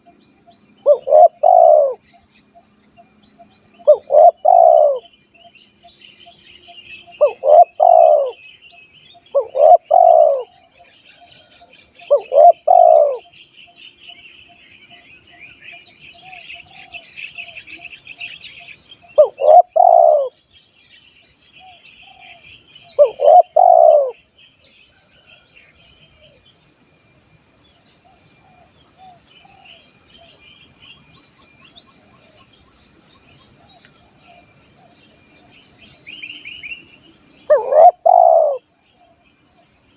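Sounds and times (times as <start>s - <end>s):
insects buzzing: 0.0s - 39.9s
small birds chirping faintly: 0.0s - 39.9s
dove cooing: 0.8s - 2.0s, 3.8s - 5.1s, 7.2s - 8.4s, 9.3s - 10.7s, 11.4s - 13.3s, 19.2s - 20.4s, 21.6s - 24.2s, 37.5s - 38.6s.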